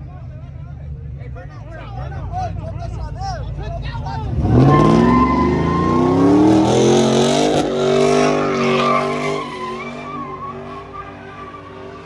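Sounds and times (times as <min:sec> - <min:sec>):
vehicle engine revving: 0:04.1 - 0:12.0.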